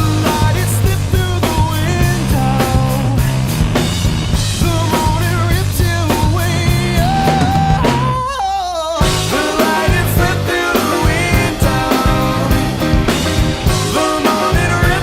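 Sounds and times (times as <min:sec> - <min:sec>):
rock song: 0:00.0 - 0:15.0.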